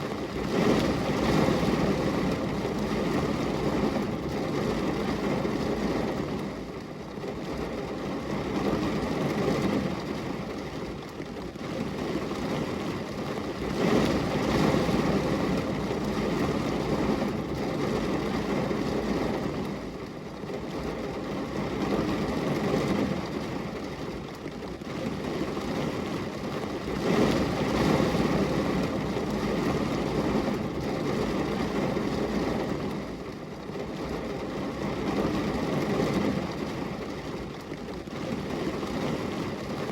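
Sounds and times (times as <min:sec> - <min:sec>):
rain on a glass window: 0:00.0 - 0:39.9.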